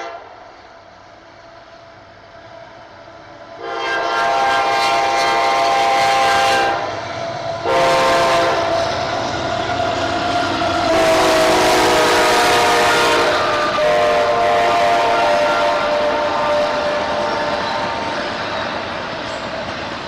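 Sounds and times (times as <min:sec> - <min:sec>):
locomotive air horn blasts: 0:00.0 - 0:00.3, 0:03.6 - 0:06.9, 0:07.6 - 0:08.9, 0:10.8 - 0:18.1
train rumble: 0:00.0 - 0:20.0.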